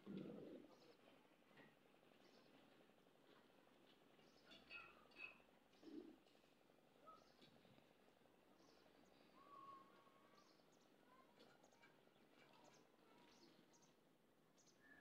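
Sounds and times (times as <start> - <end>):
faint bird chirps: 7.0 - 7.6, 8.5 - 14.0, 14.6 - 15.0.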